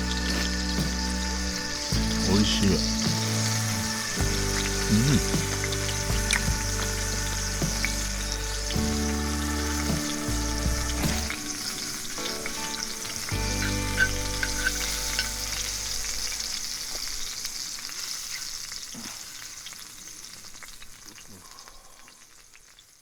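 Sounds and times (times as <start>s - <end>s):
soft sustained music notes: 0.0s - 17.2s
food sizzling in a skillet: 0.0s - 23.0s.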